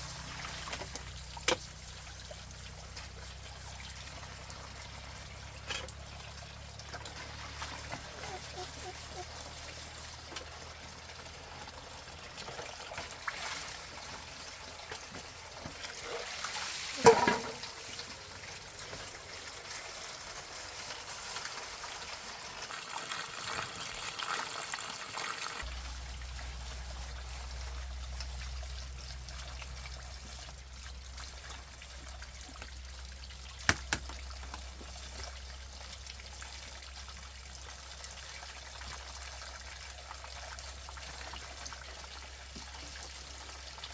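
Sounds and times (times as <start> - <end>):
water trickling: 22.4 - 43.9.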